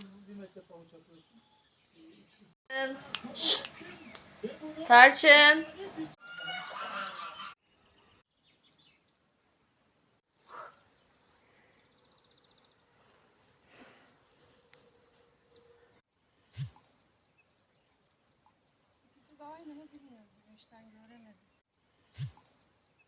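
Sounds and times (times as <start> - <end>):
buzzy bird trill: 6.2 - 8.2
bird chirps: 6.2 - 19.4.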